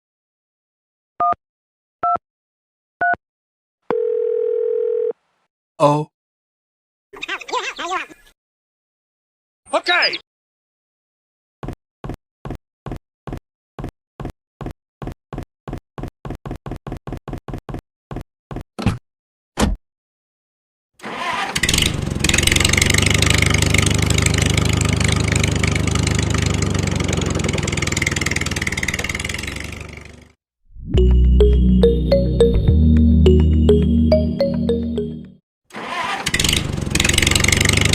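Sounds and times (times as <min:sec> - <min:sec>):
small engine running: 0:21.0 - 0:30.4, 0:35.7 - 0:37.9.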